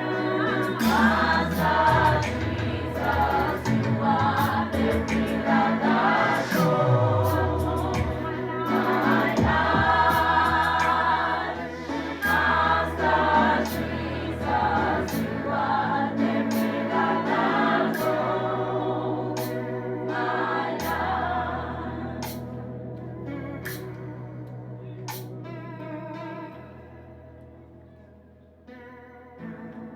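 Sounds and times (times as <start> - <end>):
youth choir singing gospel: 0.0 - 24.0.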